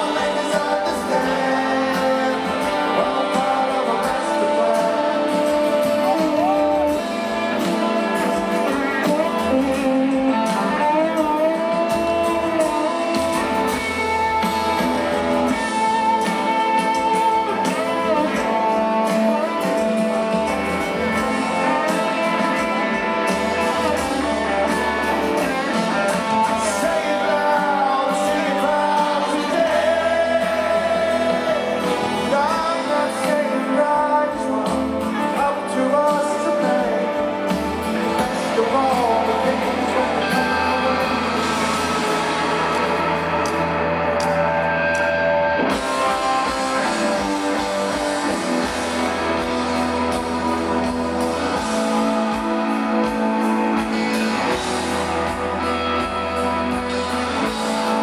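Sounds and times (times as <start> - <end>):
person singing: 0.0 - 44.5
guitars: 0.0 - 58.0
live rock band: 0.0 - 58.0.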